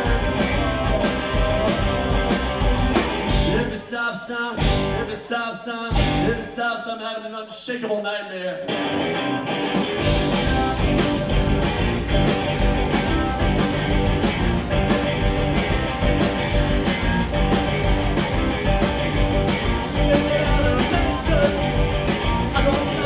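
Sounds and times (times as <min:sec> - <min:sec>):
drums with cymbal hits: 0:00.0 - 0:03.8, 0:04.6 - 0:05.2, 0:05.9 - 0:06.6, 0:10.0 - 0:23.0
bass guitar: 0:00.0 - 0:03.9, 0:04.6 - 0:05.2, 0:05.9 - 0:06.6, 0:08.7 - 0:23.0
electric guitar: 0:00.0 - 0:03.9, 0:04.6 - 0:05.3, 0:05.9 - 0:06.6, 0:08.6 - 0:23.0.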